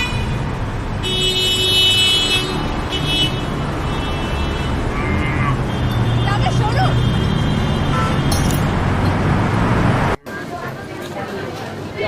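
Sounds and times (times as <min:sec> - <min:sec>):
vehicle horns honking: 0:00.0 - 0:08.5
road traffic: 0:00.0 - 0:12.0.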